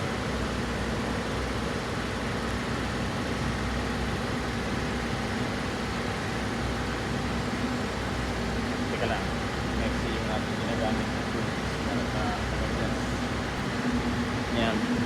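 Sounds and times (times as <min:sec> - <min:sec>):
machine drone with low hum: 0:00.0 - 0:15.0
faint steady tones: 0:06.5 - 0:15.0.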